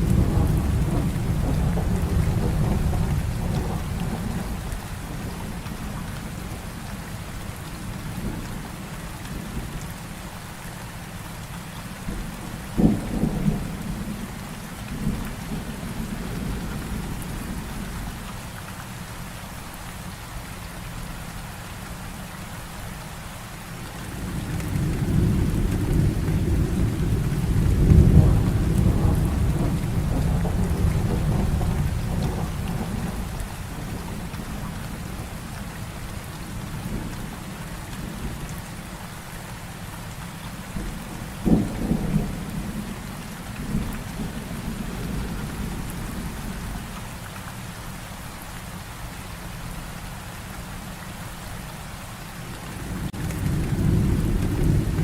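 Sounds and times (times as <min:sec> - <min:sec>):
sharp thunderclap: 0:00.0 - 0:04.6, 0:24.0 - 0:34.8, 0:40.8 - 0:42.9
rolling rumble of thunder: 0:00.0 - 0:09.9, 0:12.1 - 0:18.2, 0:23.8 - 0:38.6, 0:40.7 - 0:47.0, 0:52.5 - 0:55.0
heavy rain: 0:00.0 - 0:55.0.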